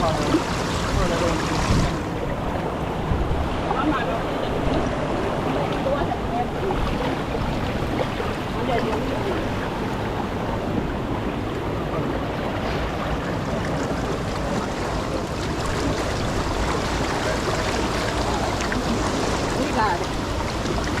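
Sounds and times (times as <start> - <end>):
river water rushing over rapids: 0.0 - 21.0.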